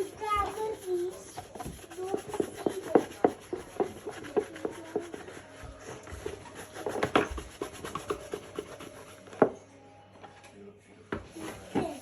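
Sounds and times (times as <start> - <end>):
hand scrubbing strokes: 0.0 - 9.2.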